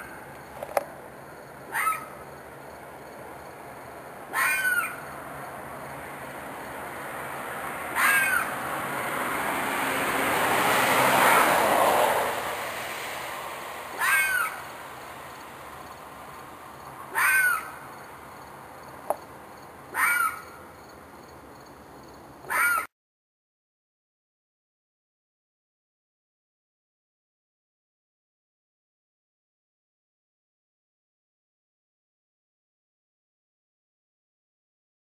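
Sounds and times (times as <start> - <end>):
rushing noise: 0.0 - 19.5
screeching animal cries: 1.7 - 2.2, 4.3 - 5.2, 7.9 - 8.6, 11.2 - 11.5, 13.9 - 14.7, 17.1 - 17.8, 19.9 - 20.6, 22.5 - 22.9.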